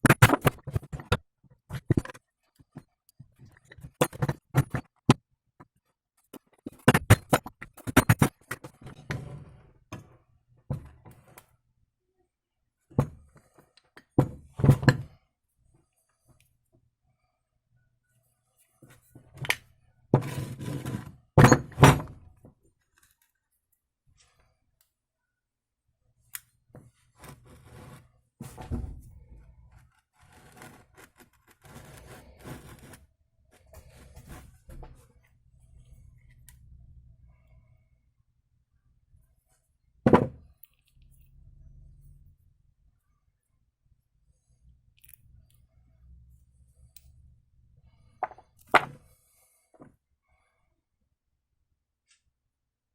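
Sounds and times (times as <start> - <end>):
metal scraping and rubbing: 29.8 - 35.0.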